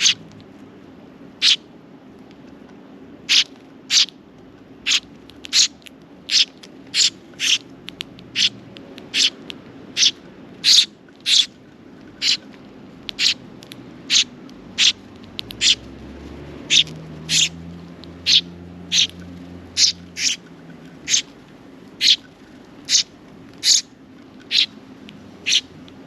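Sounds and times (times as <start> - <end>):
sparrow chirping: 0.0 - 0.2, 1.4 - 1.6, 3.2 - 4.2, 4.8 - 11.6, 12.2 - 15.9, 16.6 - 21.4, 22.0 - 24.8, 25.4 - 26.0.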